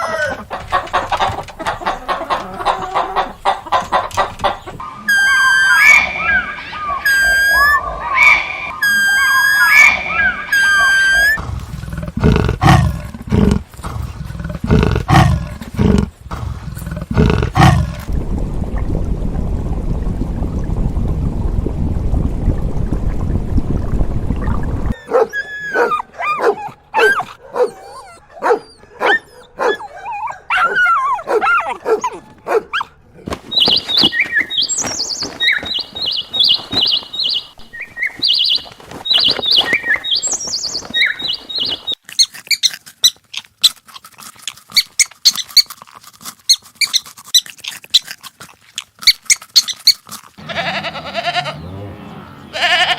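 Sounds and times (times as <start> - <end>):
yelping whining animal calls: 0.0 - 0.6, 4.8 - 16.2, 25.0 - 32.9, 49.1 - 52.9
low loud animal calls: 4.8 - 11.4, 50.4 - 52.9
low animal rumble: 11.4 - 21.5.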